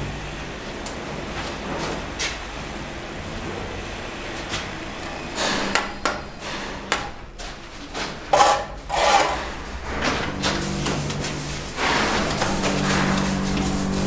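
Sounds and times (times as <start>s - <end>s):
mason's tools knocking and scraping: 8.3s - 9.6s.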